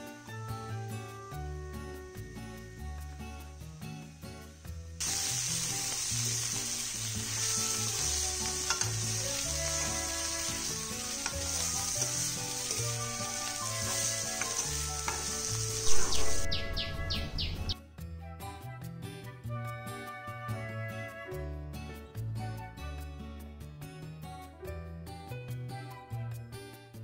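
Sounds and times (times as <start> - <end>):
food sizzling while stir-fried: 0.0 - 17.6
background music: 0.0 - 27.0
metal spoon scraping: 7.3 - 15.7.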